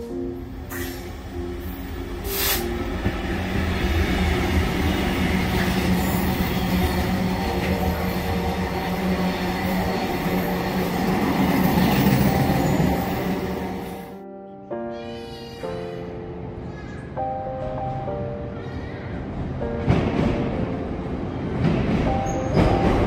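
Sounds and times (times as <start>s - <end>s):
diesel locomotive engine passing: 0.0s - 14.2s.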